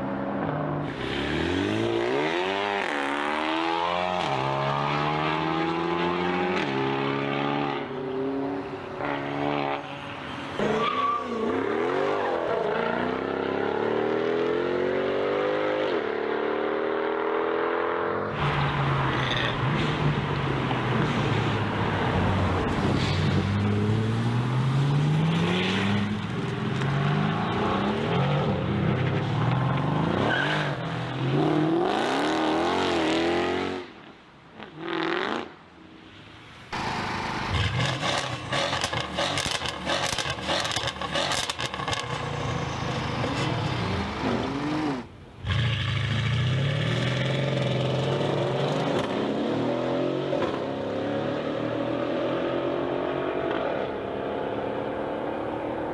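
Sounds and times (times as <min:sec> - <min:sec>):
car engines accelerating hard: 0:11.4 - 0:33.8, 0:36.8 - 0:55.9.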